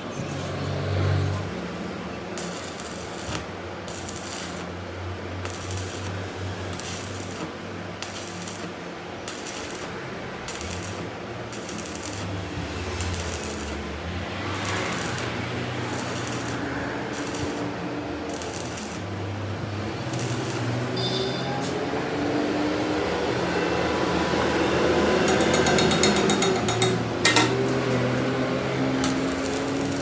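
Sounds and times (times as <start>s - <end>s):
metallic clinking and rattling: 25.3s - 27.8s.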